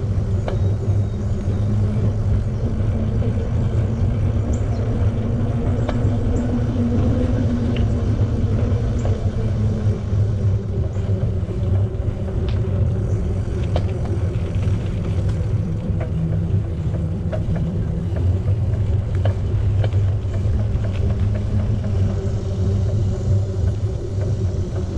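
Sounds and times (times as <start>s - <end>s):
bicycle tyres rolling on pavement: 0.0s - 24.9s
small ticks and clicks: 0.0s - 24.9s
wind buffeting microphone: 0.0s - 24.9s.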